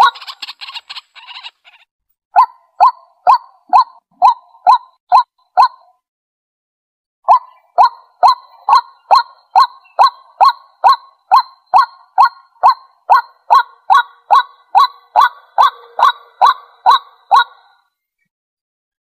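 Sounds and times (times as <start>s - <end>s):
waterhen harsh calls: 0.0s - 1.9s, 7.3s - 17.8s.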